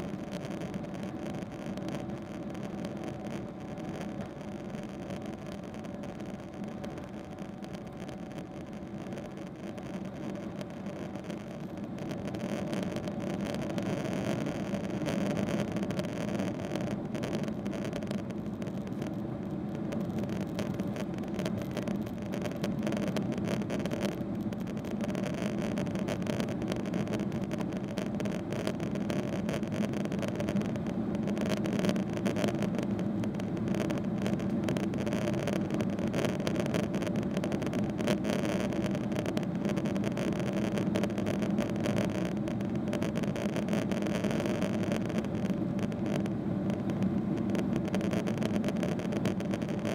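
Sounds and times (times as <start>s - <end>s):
steady hum tones: 0.0s - 49.9s
airplane cabin drone: 38.7s - 49.9s.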